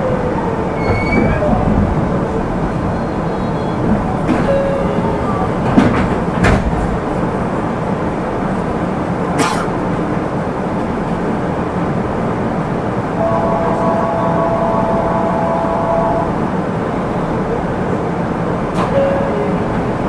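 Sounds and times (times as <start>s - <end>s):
train rumbling: 0.0s - 20.0s
wheels clacking over rail joints: 0.7s - 7.4s.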